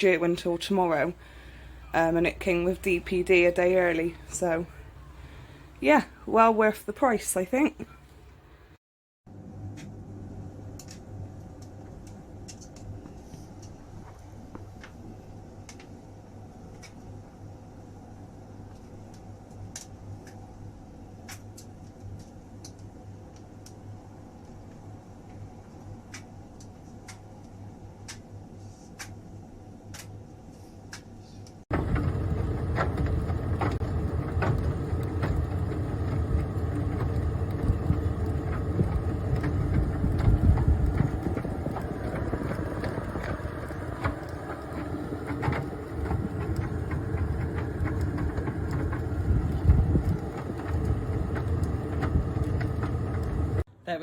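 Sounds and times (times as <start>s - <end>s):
tumble dryer running: 0.0s - 6.5s, 31.7s - 53.7s.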